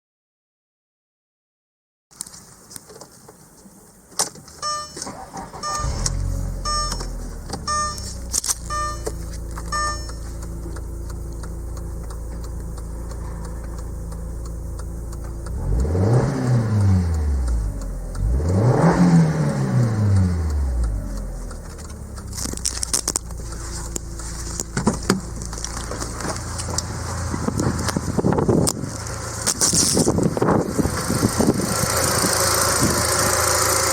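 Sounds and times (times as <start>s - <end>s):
warning chime beeping: 4.6s - 11.9s
car engine idling and revving: 4.6s - 33.9s.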